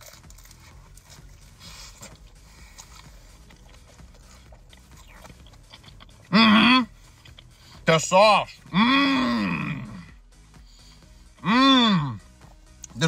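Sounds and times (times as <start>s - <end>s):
person chewing food: 0.0s - 7.8s.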